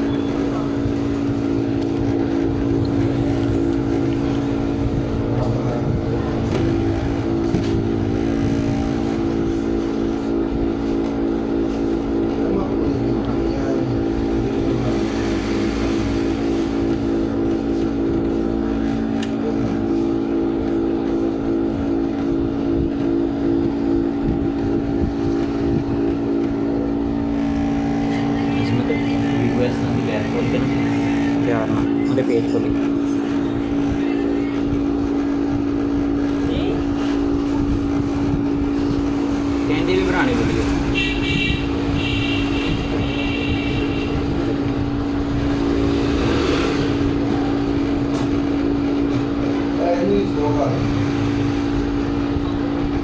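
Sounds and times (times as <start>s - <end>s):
motor humming: 0.0s - 53.0s.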